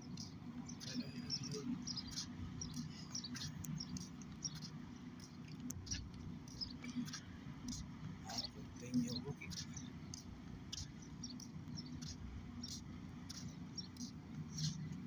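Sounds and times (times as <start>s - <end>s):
low steady rumble: 0.0s - 15.0s
small birds chirping: 0.0s - 15.0s.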